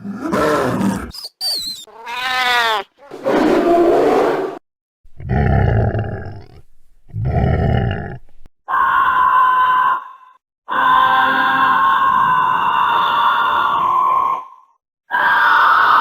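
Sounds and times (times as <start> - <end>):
processed donkey grunts: 5.1 - 8.5.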